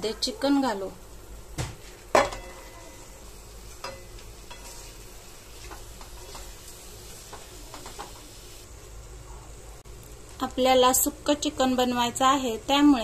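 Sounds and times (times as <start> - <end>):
chicken sizzling in oil: 0.0 - 9.1
wooden spatula scraping and knocking pan: 3.7 - 8.2.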